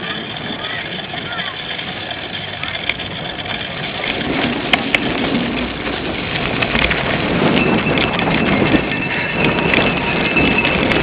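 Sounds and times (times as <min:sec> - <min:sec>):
bike tyre and frame rattle: 0:00.0 - 0:11.0
thin steady whine: 0:00.0 - 0:11.0
wind on microphone: 0:03.7 - 0:11.0.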